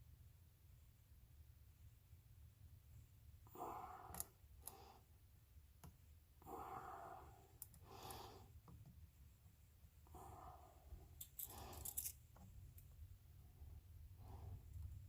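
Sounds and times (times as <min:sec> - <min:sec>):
person breathing out heavily: 0:06.4 - 0:08.6.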